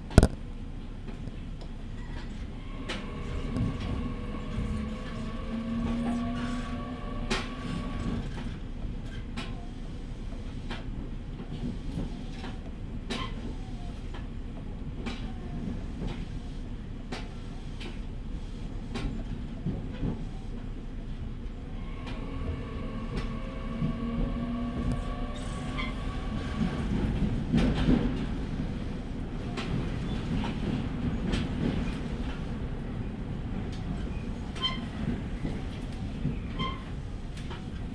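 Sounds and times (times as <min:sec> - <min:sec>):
train low rumble: 0:00.0 - 0:37.9.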